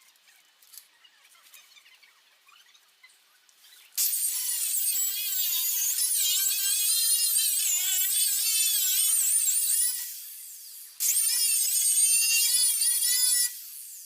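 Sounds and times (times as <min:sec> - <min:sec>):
angle grinder on metal: 0:04.0 - 0:14.0.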